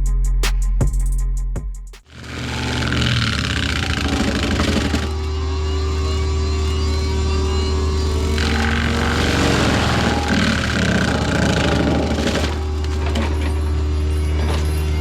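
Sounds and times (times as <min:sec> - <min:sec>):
music with drum beat: 0:00.0 - 0:02.1
harsh noise: 0:02.0 - 0:14.1
heavy equipment engine running: 0:02.1 - 0:15.0.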